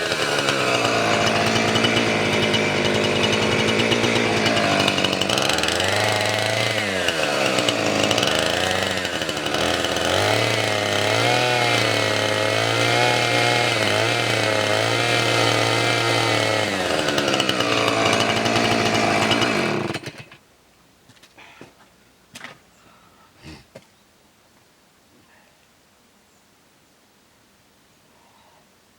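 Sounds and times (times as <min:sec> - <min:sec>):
chainsaw cutting wood: 0:00.0 - 0:20.4.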